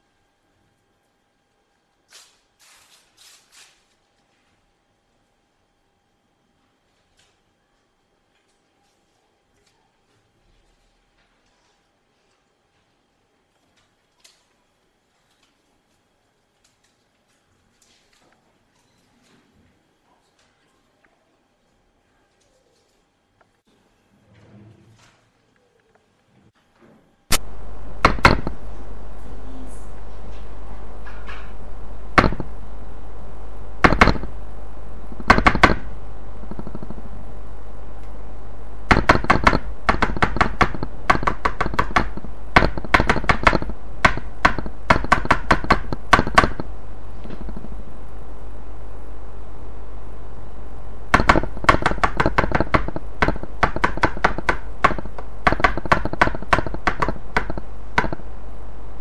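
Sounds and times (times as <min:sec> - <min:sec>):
low hum: 0:27.2 - 0:59.0
rapid sharp taps: 0:33.8 - 0:34.3, 0:35.2 - 0:35.9, 0:38.9 - 0:46.7, 0:51.1 - 0:58.2.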